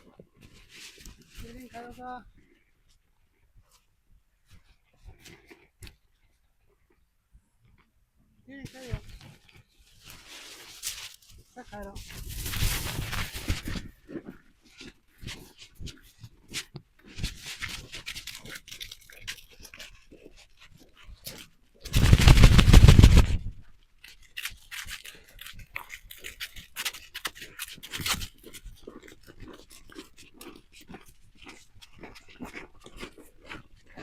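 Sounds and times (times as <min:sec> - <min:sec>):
footsteps crunching in snow: 0:12.0 - 0:13.8, 0:21.9 - 0:23.5
loud rough rustling: 0:21.9 - 0:23.6.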